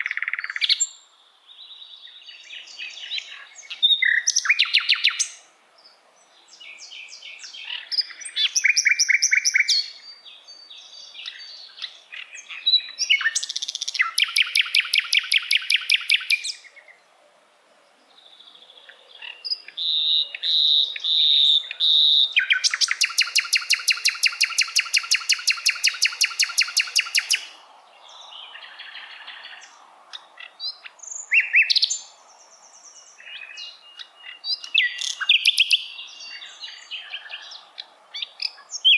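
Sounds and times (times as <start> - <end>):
clear whistled bird notes: 14.0 - 16.7, 19.9 - 27.6.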